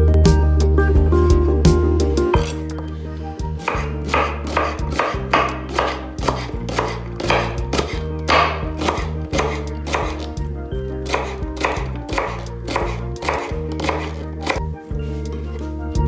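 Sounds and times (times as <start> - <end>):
knife chopping on cutting board: 2.4 - 2.6, 3.6 - 10.4, 11.1 - 14.6.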